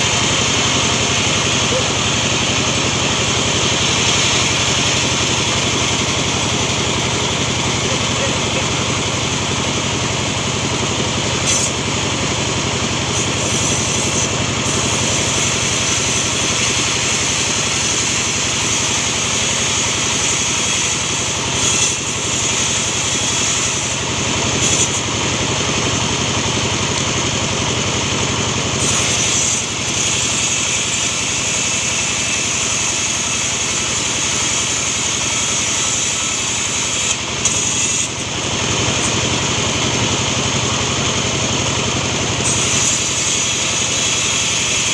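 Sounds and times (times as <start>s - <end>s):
small saw engine running: 0.0s - 44.9s.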